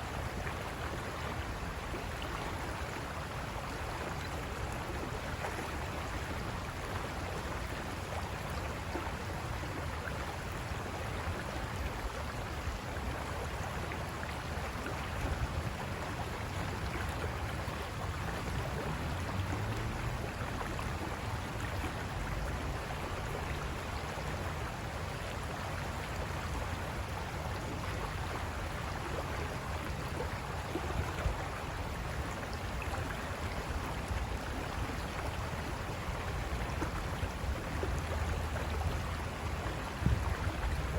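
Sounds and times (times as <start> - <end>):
river water rushing over rocks: 0.0 - 40.9.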